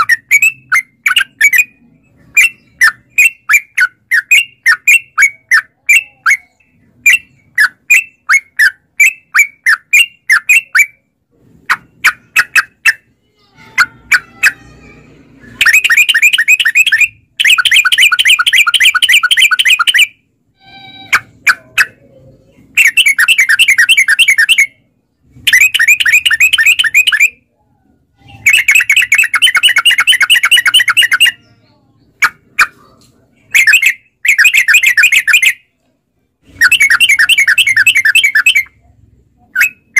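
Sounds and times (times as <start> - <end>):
bird singing rattling chatters: 15.6 - 20.1, 21.1 - 24.7, 25.4 - 27.4, 28.2 - 31.6, 33.5 - 35.6, 36.5 - 38.8.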